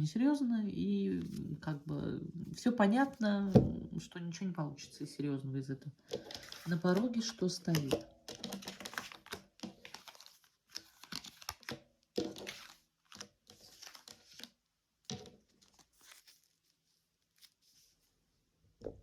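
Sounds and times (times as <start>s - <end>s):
cards rustling and clicking: 6.0s - 17.8s.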